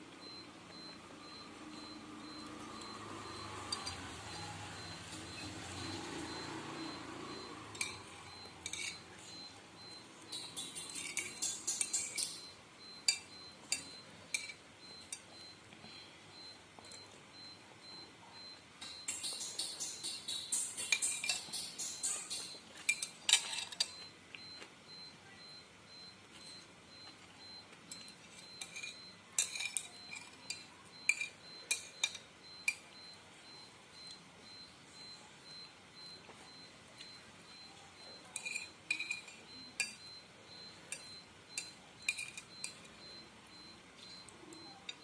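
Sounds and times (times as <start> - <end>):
cutlery clinking against a bowl: 3.7 - 4.5, 7.7 - 9.4, 10.2 - 15.4, 18.8 - 24.1, 27.8 - 33.0, 38.2 - 40.1, 40.9 - 43.0.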